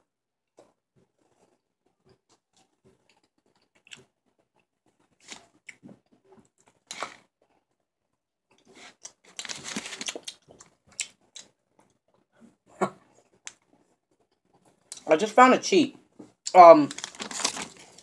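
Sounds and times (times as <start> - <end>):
chewing chocolate: 0.6 - 7.7, 8.5 - 12.3.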